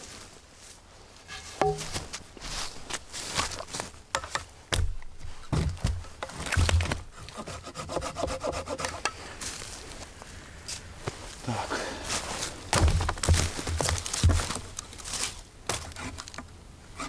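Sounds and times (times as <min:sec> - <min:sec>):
dull knocks: 0:01.6 - 0:07.2, 0:12.7 - 0:14.7
hand saw cutting wood: 0:02.7 - 0:09.3.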